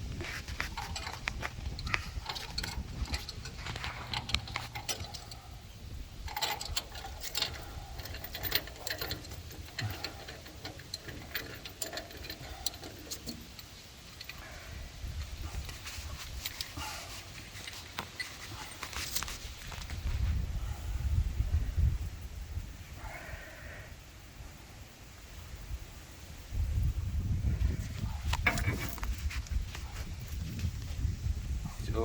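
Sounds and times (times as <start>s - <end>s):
metallic clicks of pipe fittings: 0.2s - 14.6s, 28.3s - 29.2s.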